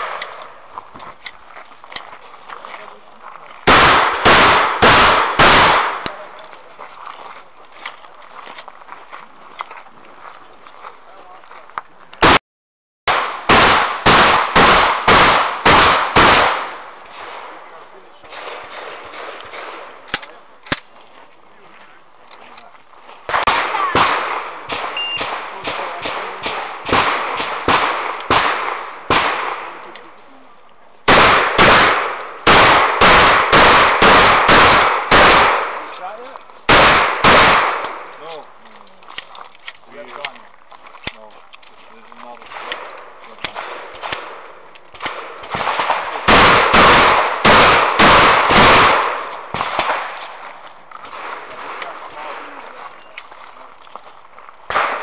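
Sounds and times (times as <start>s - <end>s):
shotgun shots with echo: 3.7s - 6.3s, 13.1s - 20.4s, 23.3s - 30.0s, 31.1s - 36.0s, 36.7s - 38.3s, 42.4s - 50.2s, 54.7s - 55.0s.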